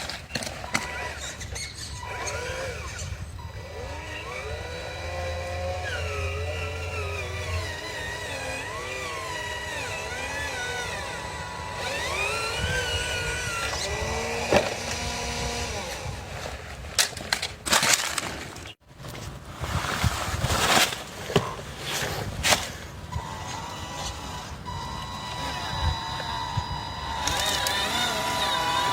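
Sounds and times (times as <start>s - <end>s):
small electric motors whining: 0.0s - 18.8s, 21.2s - 28.9s
stones clattering and crunching: 17.0s - 23.0s.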